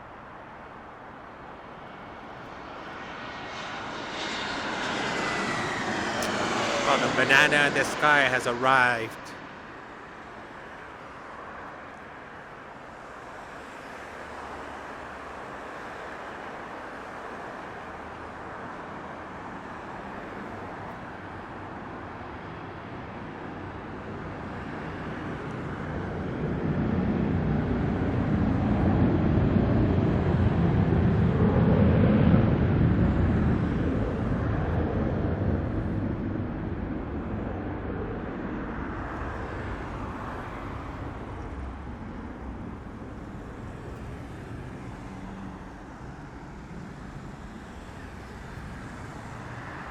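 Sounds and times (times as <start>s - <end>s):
jet airliner passing: 2.6s - 9.4s.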